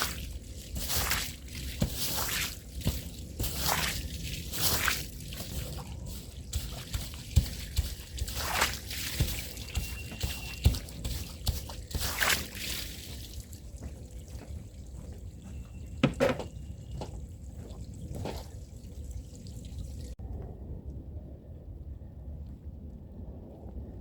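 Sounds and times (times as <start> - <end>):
brush swishes: 0.0 - 13.4
water sloshing on scrubbed rug: 0.0 - 15.4, 16.5 - 20.2.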